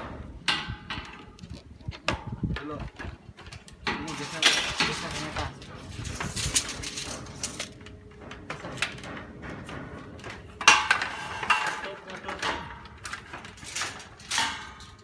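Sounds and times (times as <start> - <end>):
metal parts clattering: 3.5 - 9.1, 10.2 - 15.0.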